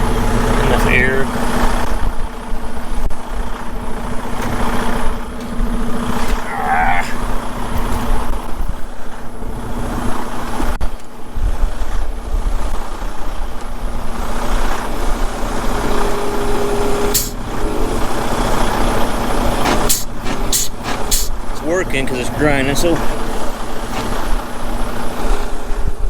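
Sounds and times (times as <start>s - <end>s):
diesel truck engine idling: 0.0s - 26.0s
short hum: 15.2s - 24.5s
sharp bursts of air: 15.7s - 21.6s, 23.1s - 24.4s.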